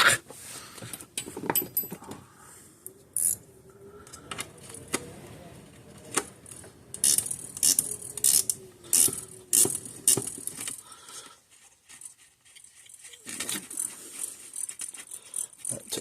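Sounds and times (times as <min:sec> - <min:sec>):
ratcheting driver clicking: 0:06.1 - 0:10.8.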